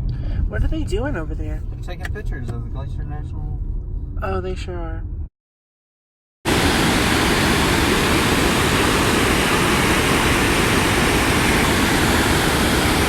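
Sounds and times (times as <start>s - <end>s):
water rushing: 6.5s - 13.0s.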